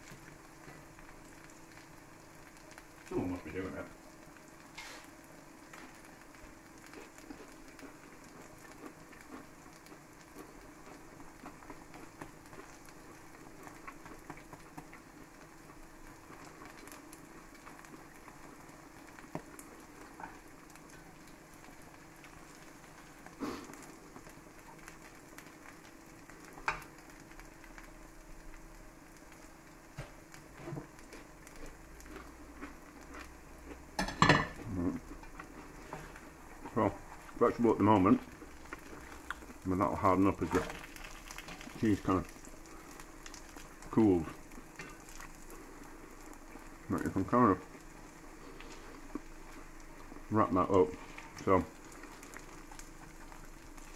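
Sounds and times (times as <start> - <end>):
cheese sizzling in a pan: 0.0 - 53.9.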